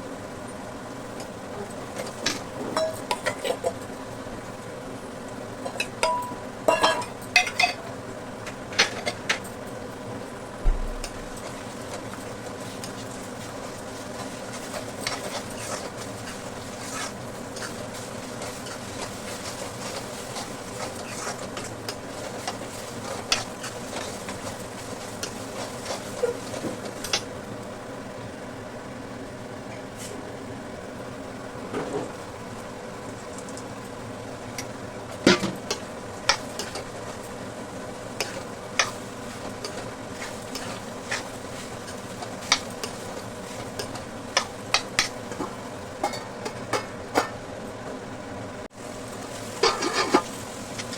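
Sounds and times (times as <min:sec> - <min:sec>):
curry sizzling in a frying pan: 0:00.0 - 0:30.1, 0:32.1 - 0:47.8, 0:48.7 - 0:50.9
spoon scraping a pan: 0:14.2 - 0:27.3, 0:38.2 - 0:46.9, 0:49.6 - 0:50.9.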